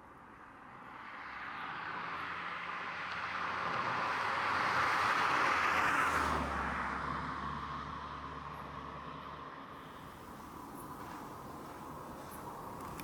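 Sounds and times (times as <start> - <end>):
vehicle passing: 9.8 - 13.0.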